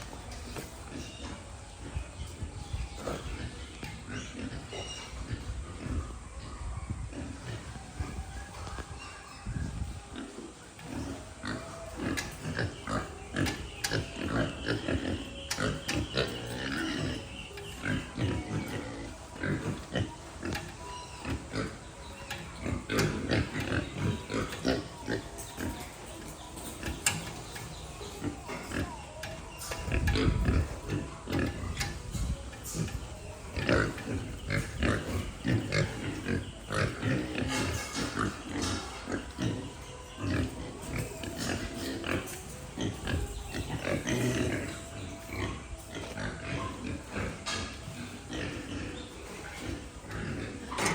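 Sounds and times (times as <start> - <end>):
pigs grunting: 0.0 - 50.9.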